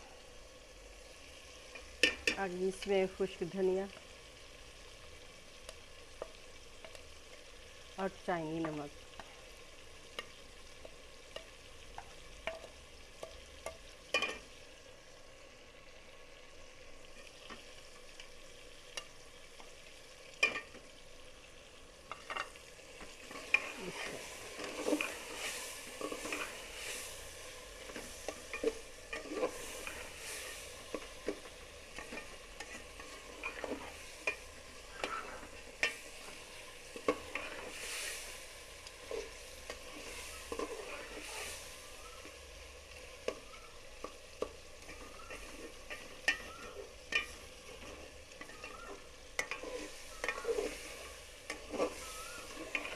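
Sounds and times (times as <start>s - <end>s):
low steady sizzle: 0.0s - 52.9s
spoon stirring and scraping pot: 10.1s - 14.5s, 20.4s - 20.8s, 22.1s - 41.7s, 43.2s - 52.9s.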